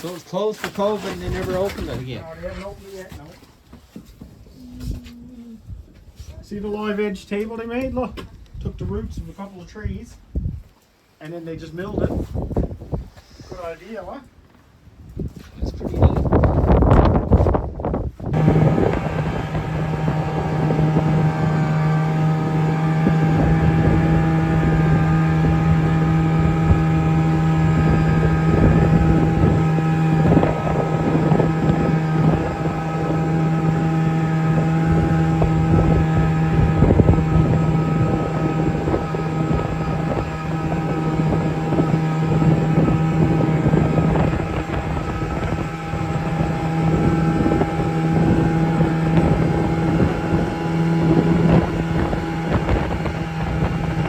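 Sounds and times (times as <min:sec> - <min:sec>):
wind noise on microphone: 0:07.7 - 0:10.8, 0:11.6 - 0:13.6, 0:14.8 - 0:54.0
snowmobile engine running: 0:18.3 - 0:54.0.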